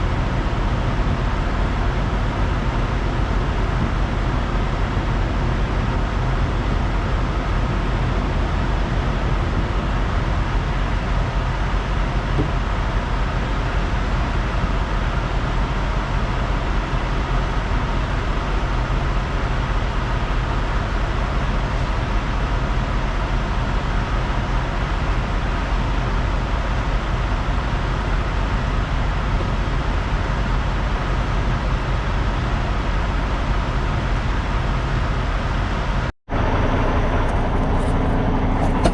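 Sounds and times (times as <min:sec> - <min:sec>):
truck diesel engine hum: 0:36.3 - 0:38.9
road noise: 0:36.8 - 0:38.9.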